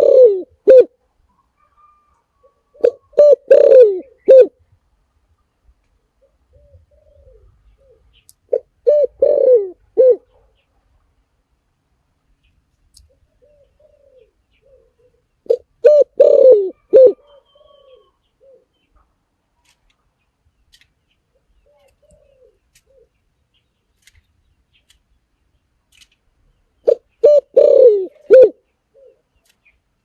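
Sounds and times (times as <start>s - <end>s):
dove cooing: 0.0s - 4.6s, 6.1s - 10.6s, 13.1s - 18.9s, 21.3s - 23.2s, 26.8s - 29.4s.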